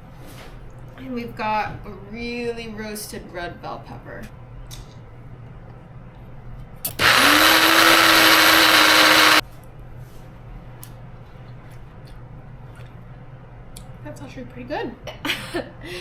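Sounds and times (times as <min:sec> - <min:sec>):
electric blender whirring: 0:06.9 - 0:09.4.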